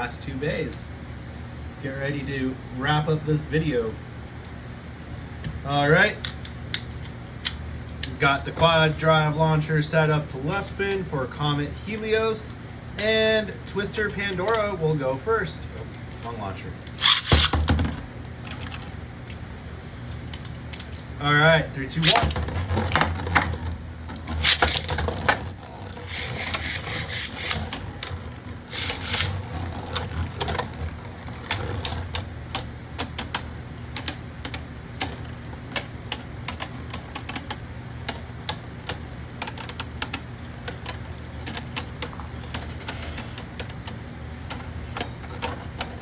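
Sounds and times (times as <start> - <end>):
steady low hum: 0.0 - 46.0
spinning tops clacking: 17.0 - 17.8, 21.9 - 35.4.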